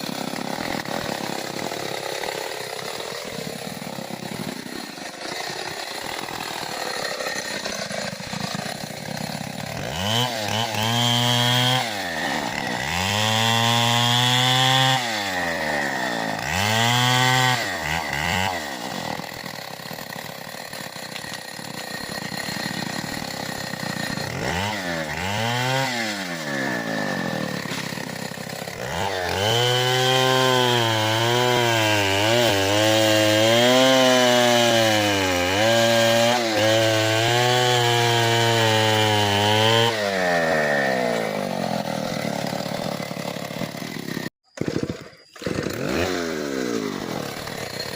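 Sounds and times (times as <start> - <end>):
two-stroke chainsaw revving: 0.0 - 47.9.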